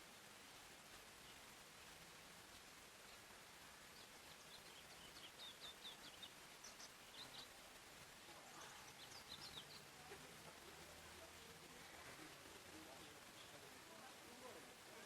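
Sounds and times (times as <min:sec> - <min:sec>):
songbird chirping: 0:00.0 - 0:15.0
steady background hiss: 0:00.0 - 0:15.0.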